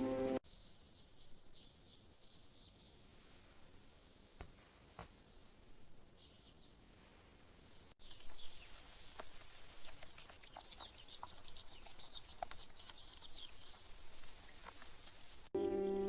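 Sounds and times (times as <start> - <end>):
light rain hissing: 6.9 - 15.6
water drips: 8.0 - 15.5
small bird chirps: 8.0 - 16.0.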